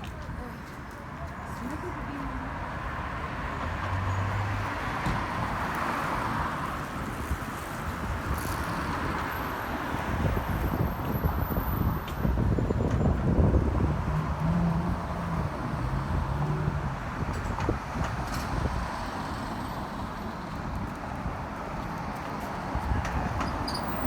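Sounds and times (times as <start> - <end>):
city street traffic: 0.0 - 24.0
wind rumbling on microphone: 4.9 - 24.0.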